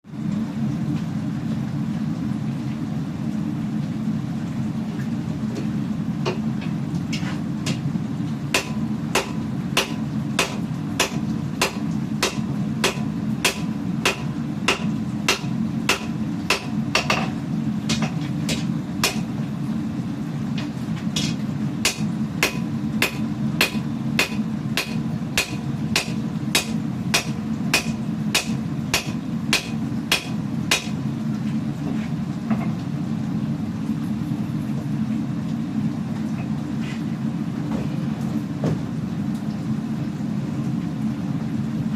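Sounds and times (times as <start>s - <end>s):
hammer striking hot steel: 8.6s - 19.3s, 21.2s - 31.0s.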